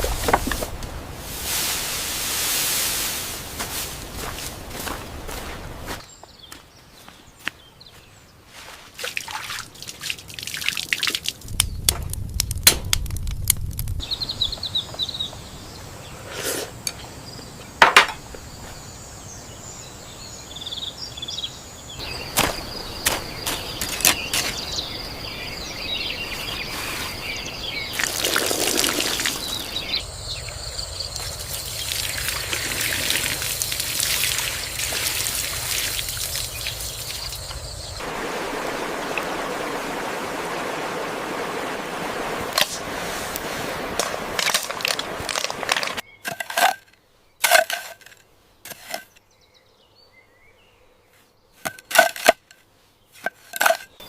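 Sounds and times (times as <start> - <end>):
rustling: 0.0 - 5.6
birds chirping: 4.0 - 8.8, 14.0 - 52.4
water trickling: 9.0 - 11.6, 27.9 - 30.0, 31.1 - 46.0.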